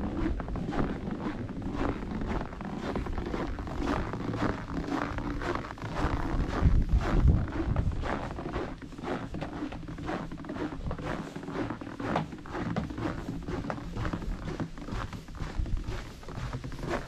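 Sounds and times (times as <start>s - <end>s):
footsteps: 0.0s - 17.0s
wind buffeting microphone: 5.7s - 9.4s.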